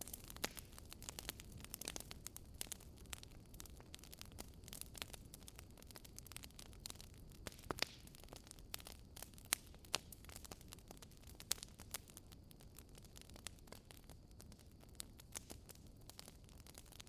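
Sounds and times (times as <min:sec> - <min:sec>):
low steady fire hiss: 0:00.0 - 0:17.0
wood fire crackling and popping: 0:00.0 - 0:17.0.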